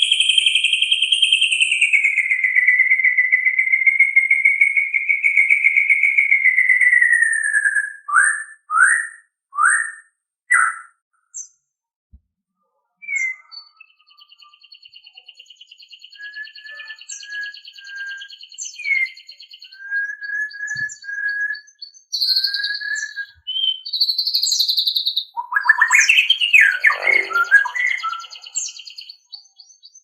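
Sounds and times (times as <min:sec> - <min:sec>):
songbird whistling: 0:00.0 - 0:11.5, 0:13.0 - 0:30.0
faint high bird trill: 0:12.9 - 0:30.0
brief bird calls: 0:22.2 - 0:29.3
short sweeping bird notes: 0:26.0 - 0:28.3.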